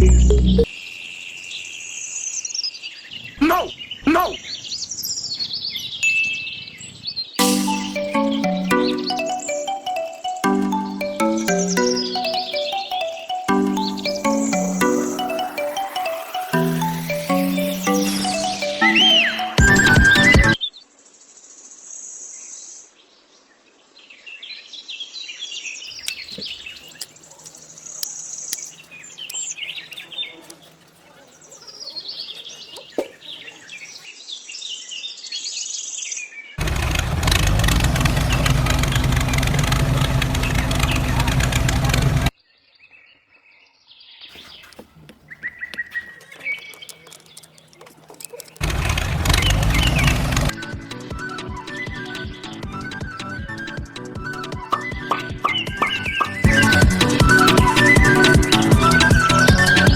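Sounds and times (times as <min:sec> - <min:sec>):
birds chirping: 0:00.0 - 0:20.7, 0:25.8 - 0:34.5, 0:44.2 - 0:59.9.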